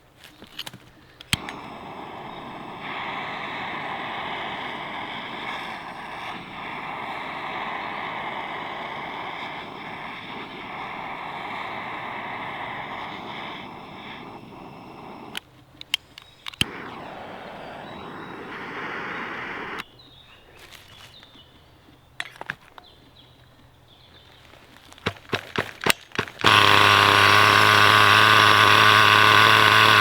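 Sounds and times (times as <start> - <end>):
rc car nitro engine revving: 1.3 - 15.4, 16.5 - 19.8, 25.0 - 30.0
sharp click: 15.3 - 16.9.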